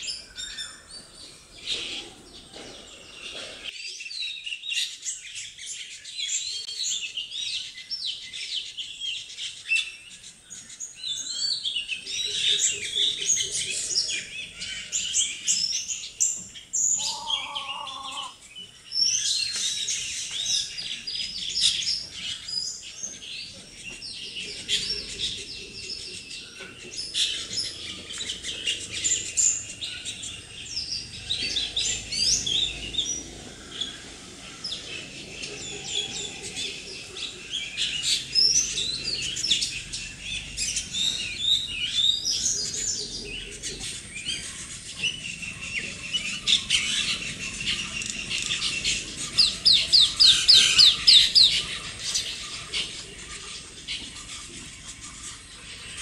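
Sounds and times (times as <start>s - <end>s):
birds chirping: 0.0s - 56.0s
low-pitched bird call: 16.8s - 18.4s.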